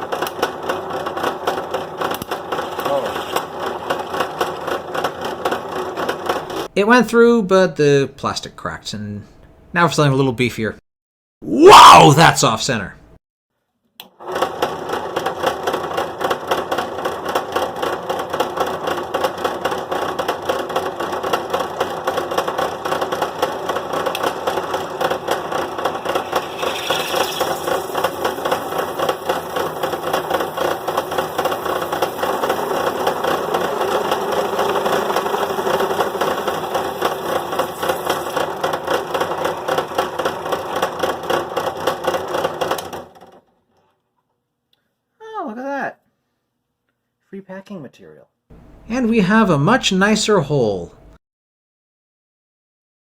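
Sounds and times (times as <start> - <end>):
drill press boring plastic: 0.0 - 6.6, 14.2 - 43.4.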